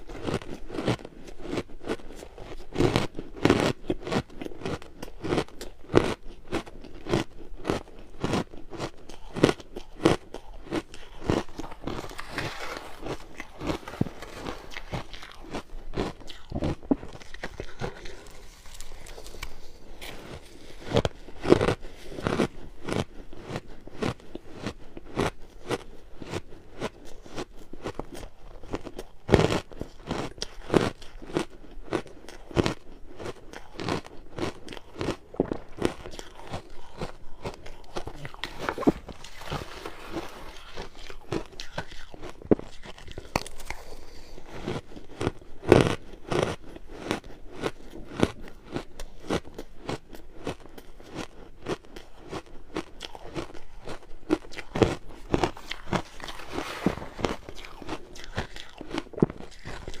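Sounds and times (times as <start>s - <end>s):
ice being chewed: 0.0s - 60.0s
ice cracking bites: 10.8s - 15.6s, 35.0s - 44.2s.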